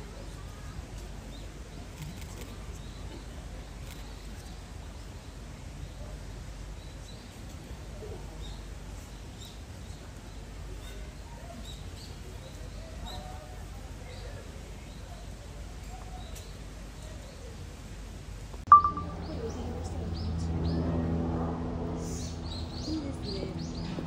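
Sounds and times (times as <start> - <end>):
steady low hum: 18.7 - 24.0
small birds chirping: 22.0 - 24.0.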